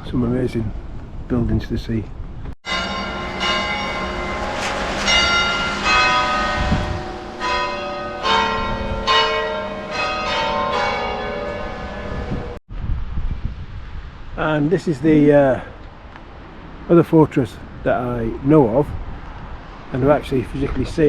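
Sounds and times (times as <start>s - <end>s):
church bells pealing: 2.6s - 12.6s.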